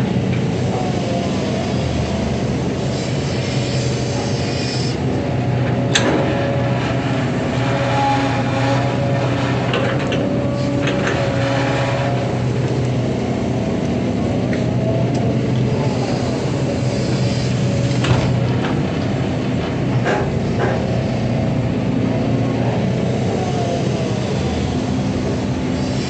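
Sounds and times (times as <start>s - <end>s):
excavator diesel engine running: 0.0s - 26.0s
knocks and clanks: 5.6s - 7.0s, 8.7s - 12.3s, 17.9s - 21.1s.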